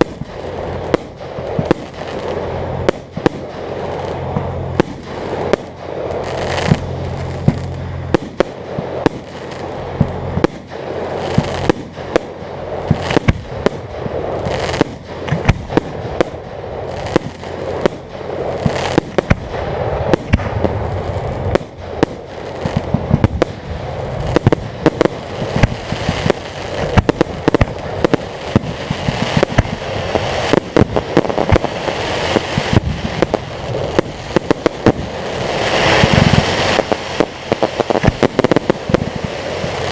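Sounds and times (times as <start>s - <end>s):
fireworks bangs and pops: 0.0s - 39.9s
crackle of bursting shells: 17.2s - 39.9s.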